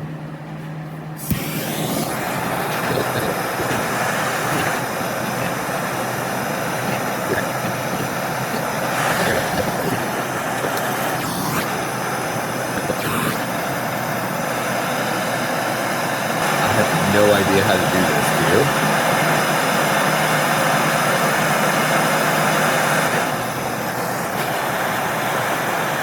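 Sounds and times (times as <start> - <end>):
gas torch hissing: 1.1 - 20.5.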